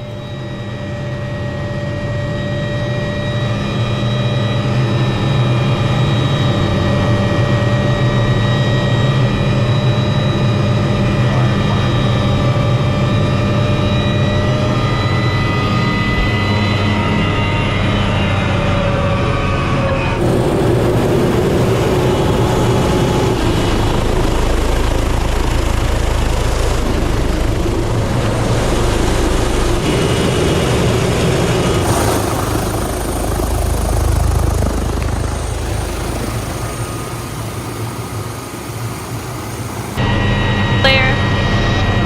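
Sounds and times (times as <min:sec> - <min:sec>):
helicopter turbine and rotor: 0:00.0 - 0:42.0.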